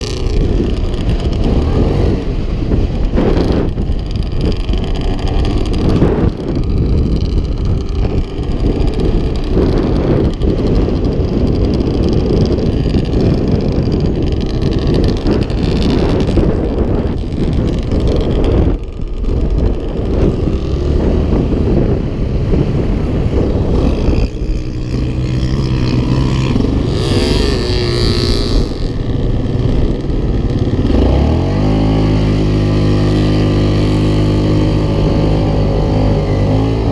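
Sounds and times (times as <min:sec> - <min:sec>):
off-road engine revving: 0:00.0 - 0:36.9.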